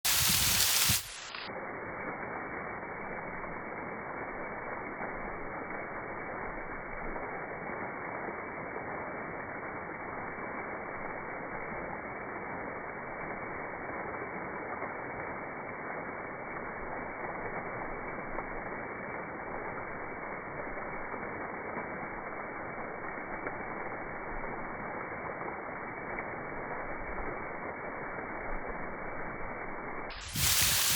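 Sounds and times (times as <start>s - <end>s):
waterfall rushing muffled: 0.0s - 1.5s, 30.1s - 30.9s.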